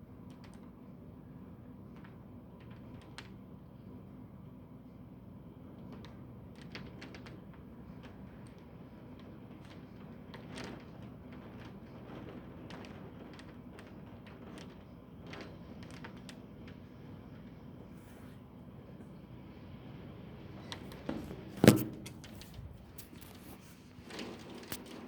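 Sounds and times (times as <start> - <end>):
low background noise: 0.0 - 25.0
raindrops tapping hard surface: 6.0 - 17.7.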